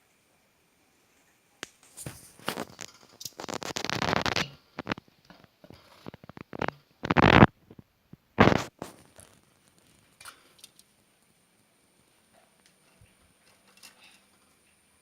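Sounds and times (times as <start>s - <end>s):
harsh scratchy bird burst: 8.4s - 9.2s.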